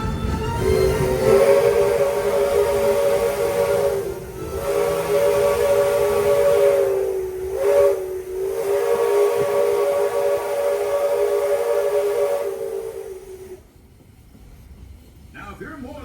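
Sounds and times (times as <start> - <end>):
steam locomotive whistle blasts: 0.0 - 13.6.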